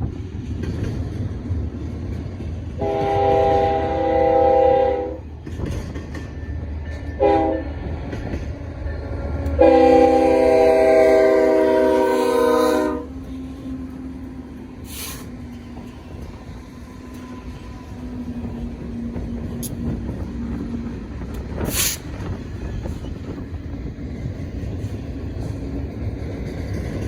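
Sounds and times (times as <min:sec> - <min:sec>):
wind buffeting microphone: 0:00.0 - 0:12.0, 0:13.1 - 0:27.0
diesel locomotives rumbling: 0:00.0 - 0:27.0
short hisses: 0:14.8 - 0:15.4, 0:21.7 - 0:22.1.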